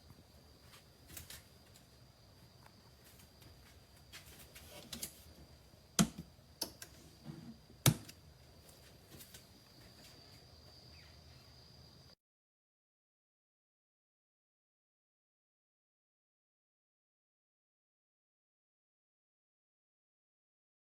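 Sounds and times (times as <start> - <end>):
faint high whine: 0.0 - 12.2
sharp knocks and clicks: 6.0 - 6.9.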